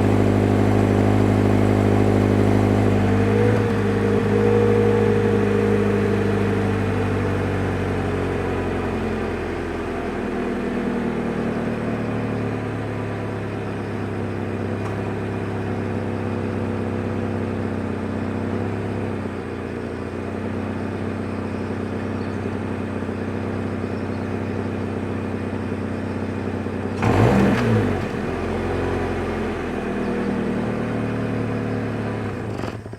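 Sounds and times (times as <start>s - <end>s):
car engine idling: 0.0s - 32.9s
engine burst: 27.0s - 29.0s.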